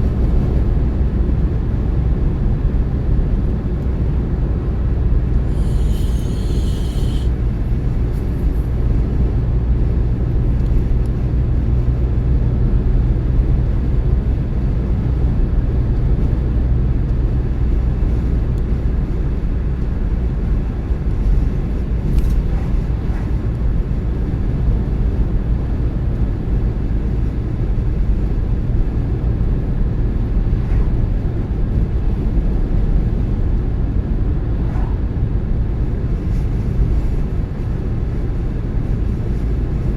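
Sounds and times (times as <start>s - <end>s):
car tyres and engine rumble: 0.0s - 39.9s
brief high hiss: 5.5s - 7.4s.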